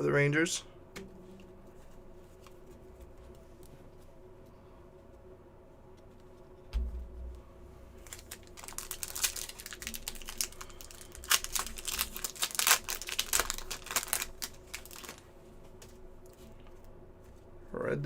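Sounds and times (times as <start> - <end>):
foil card packs crinkling: 8.0 - 15.3.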